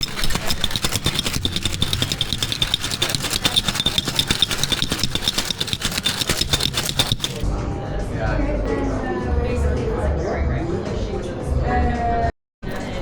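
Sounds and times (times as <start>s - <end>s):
ice rattling in cocktail shaker: 0.0s - 7.4s.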